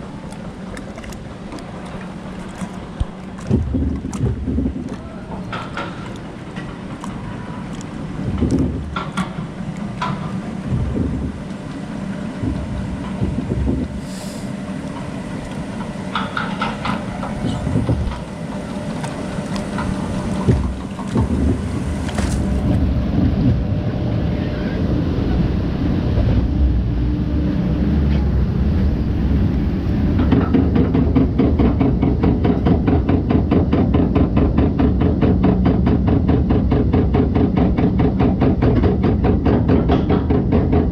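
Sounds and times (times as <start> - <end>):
boat knocking: 0.0 - 40.9
water sloshing and rumbling: 0.0 - 40.9
wind on microphone: 2.9 - 5.6, 8.2 - 9.3, 10.0 - 11.6, 12.2 - 14.6, 16.4 - 18.3, 19.5 - 40.9.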